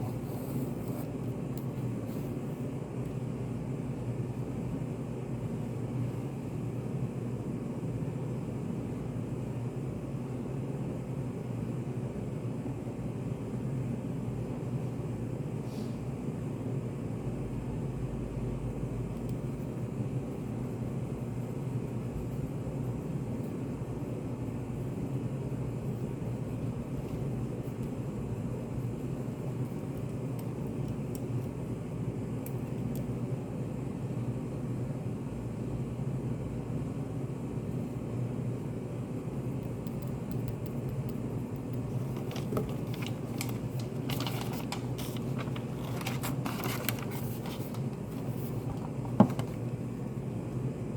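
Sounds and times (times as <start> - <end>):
steady low hum: 0.0 - 50.9
small clicks and scratches: 39.6 - 49.5.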